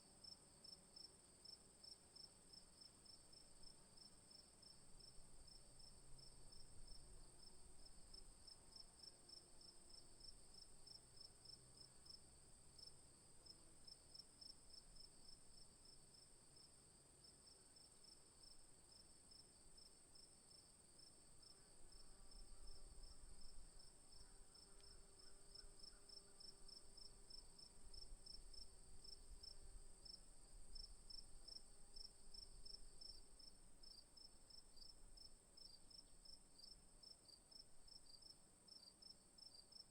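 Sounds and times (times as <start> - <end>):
high insect buzz: 21.1 - 34.9.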